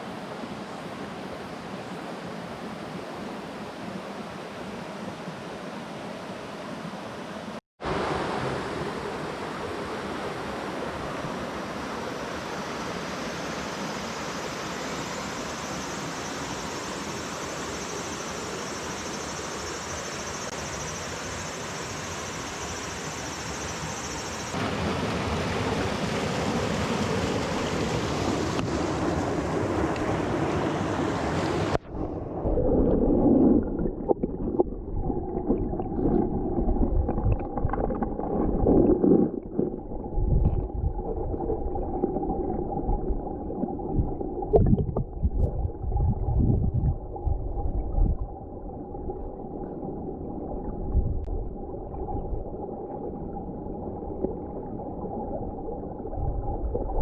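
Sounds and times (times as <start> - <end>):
stream water rushing: 24.3 - 43.9
underwater gurgling and bubbling: 31.7 - 57.0.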